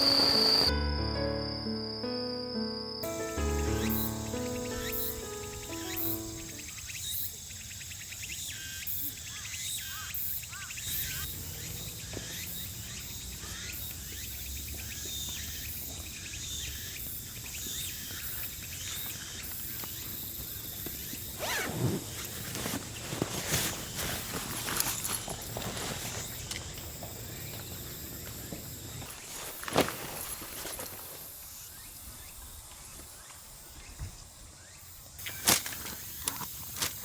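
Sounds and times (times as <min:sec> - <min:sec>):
steady hiss: 0:00.0 - 0:00.7
insects chirping: 0:00.0 - 0:37.0.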